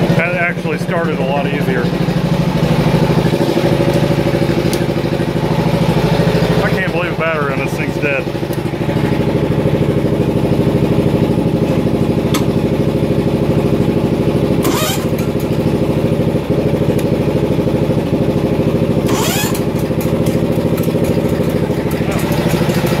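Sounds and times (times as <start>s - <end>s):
garden tractor engine idling: 0.0s - 23.0s.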